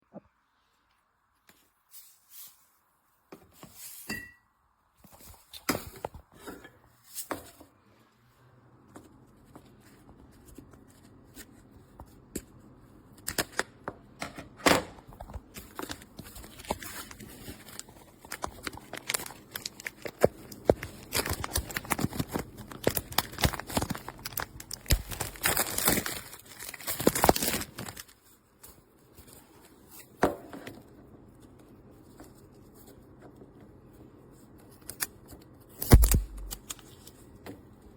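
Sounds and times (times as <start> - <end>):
packaging tearing and crinkling: 15.6 - 28.2, 35.7 - 37.1.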